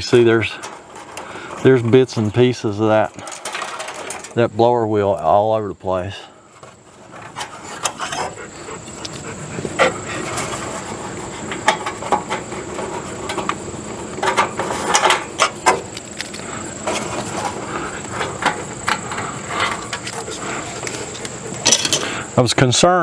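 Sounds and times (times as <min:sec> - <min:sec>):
tools clicking and knocking: 0:02.8 - 0:04.4, 0:14.2 - 0:22.2.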